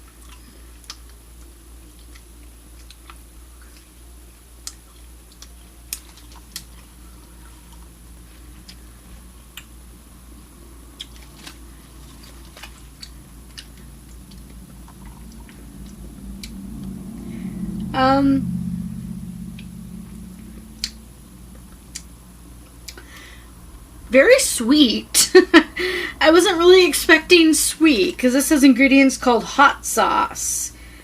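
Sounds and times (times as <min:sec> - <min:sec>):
person chewing jerky: 0:00.0 - 0:09.8, 0:10.8 - 0:17.0, 0:20.3 - 0:23.4
steady low hum: 0:00.0 - 0:31.0.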